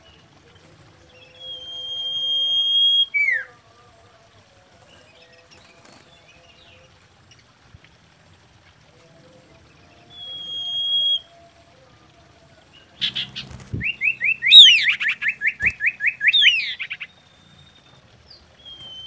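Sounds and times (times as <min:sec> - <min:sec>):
bird whistling: 0:01.2 - 0:03.5, 0:10.1 - 0:11.4, 0:13.0 - 0:18.0, 0:18.6 - 0:19.0
faint bird chirps: 0:09.7 - 0:11.8, 0:12.7 - 0:19.0.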